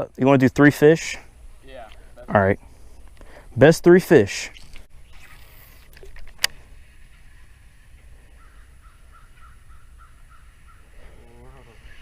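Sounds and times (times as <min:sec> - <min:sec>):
bird calling faintly: 0:04.5 - 0:12.0.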